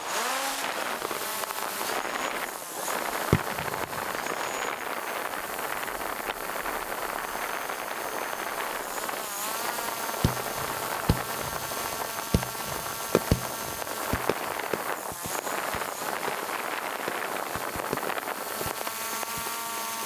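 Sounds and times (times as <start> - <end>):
fireworks hiss and crackle: 0.0 - 20.0
firework shells booming: 3.1 - 7.5, 8.4 - 18.9.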